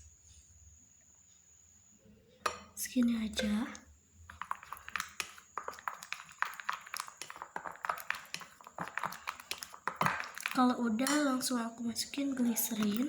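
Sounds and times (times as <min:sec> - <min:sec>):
spatula and containers clicking: 0:03.4 - 0:11.5, 0:12.1 - 0:13.0.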